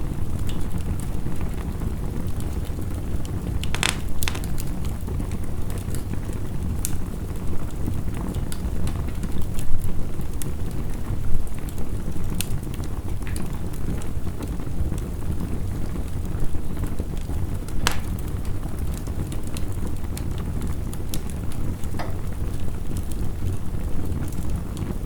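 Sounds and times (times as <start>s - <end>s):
wood fire crackling: 0.0s - 25.0s
sharp pops from fire: 2.4s - 7.2s, 16.9s - 23.3s.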